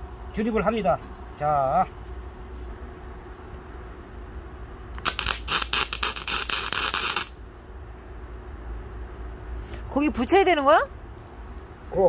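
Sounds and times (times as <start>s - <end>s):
low steady hum: 0.0s - 12.0s
arc welder crackling sizzle: 4.9s - 7.6s.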